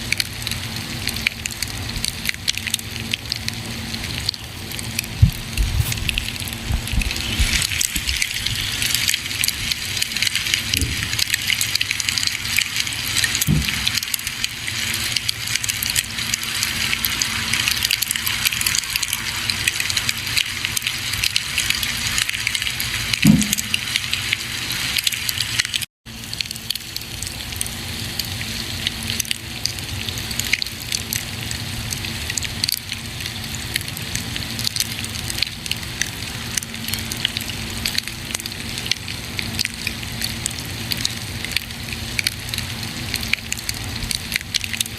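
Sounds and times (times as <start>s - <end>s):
steady hiss: 4.5s - 25.9s.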